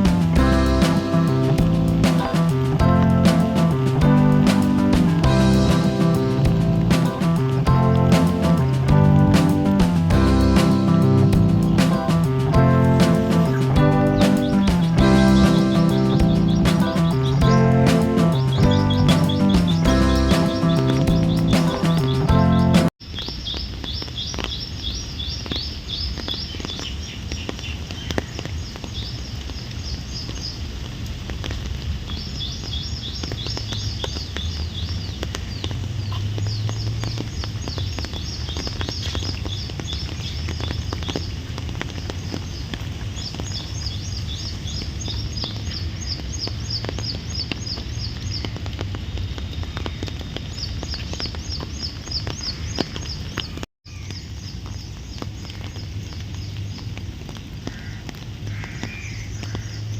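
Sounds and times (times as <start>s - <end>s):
low outdoor rumble: 0.0s - 22.9s
birds chirping in trills: 10.4s - 27.1s.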